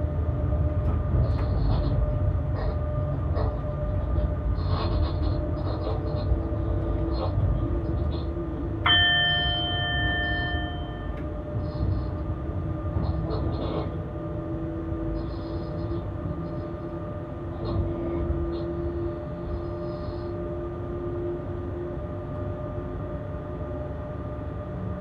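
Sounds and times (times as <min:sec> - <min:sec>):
electric locomotive rumble: 0:00.0 - 0:25.0
bell-like chime: 0:08.9 - 0:11.2.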